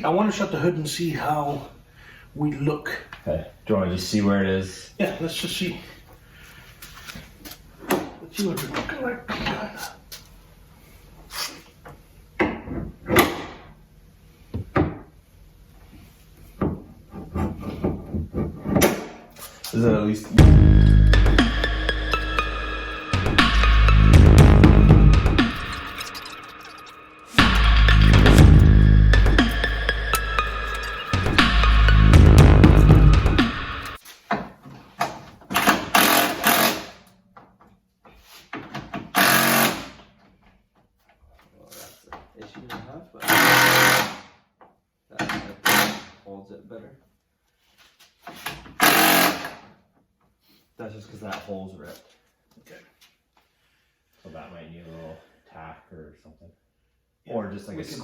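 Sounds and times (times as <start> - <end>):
music with drum beat: 20.4 - 34.0.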